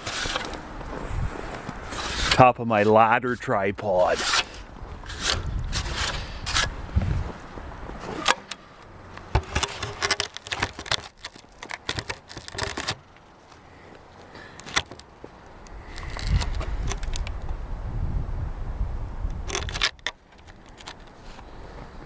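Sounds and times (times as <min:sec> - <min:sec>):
low rumbling: 0:04.5 - 0:09.2
camera handling clicks and knocks: 0:08.2 - 0:13.0.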